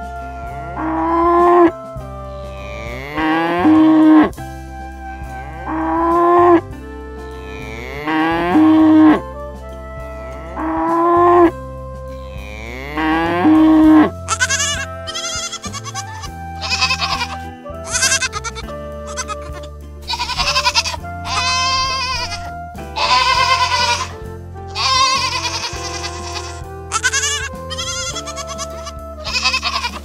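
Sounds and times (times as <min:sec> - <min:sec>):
background music: 0:00.0 - 0:30.0
cow mooing: 0:02.4 - 0:04.4, 0:05.1 - 0:09.2, 0:12.3 - 0:30.0
goats bleating: 0:07.4 - 0:09.1, 0:12.3 - 0:30.0.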